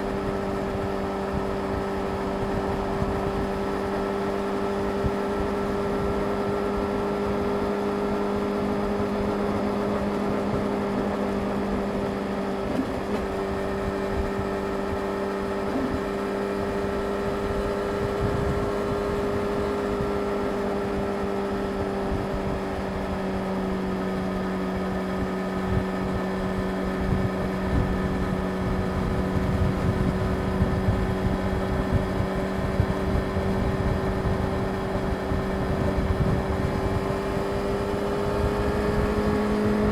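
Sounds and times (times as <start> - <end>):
wind noise on microphone: 0.0 - 7.4, 12.7 - 39.9
motorcycle engine cruising: 0.0 - 39.9.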